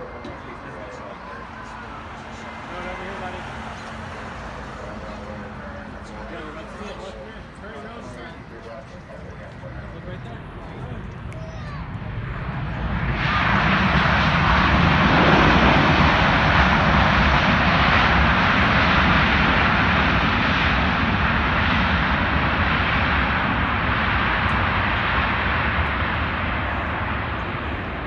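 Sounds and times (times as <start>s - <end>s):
jet airliner landing: 0.0s - 28.0s.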